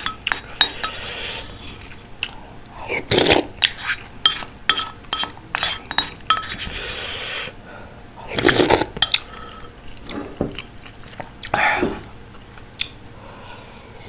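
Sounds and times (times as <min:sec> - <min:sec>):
utensils clinking against dishes: 0:00.0 - 0:01.2, 0:03.6 - 0:06.7, 0:09.0 - 0:09.3
eating sound: 0:00.0 - 0:04.5, 0:08.2 - 0:13.0
scrape or slurp: 0:02.9 - 0:04.0, 0:08.3 - 0:08.9.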